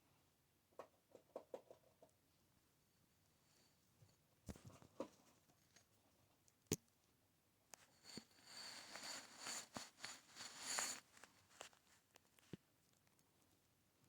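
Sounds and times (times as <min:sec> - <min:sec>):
soft rustling: 0:07.7 - 0:13.6.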